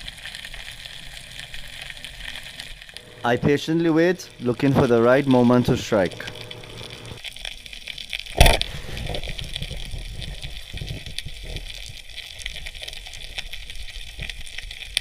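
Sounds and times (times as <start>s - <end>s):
faint crackling: 0.0s - 15.0s
underwater hiss and rumble: 0.0s - 15.0s
speargun firing underwater: 8.4s - 8.7s.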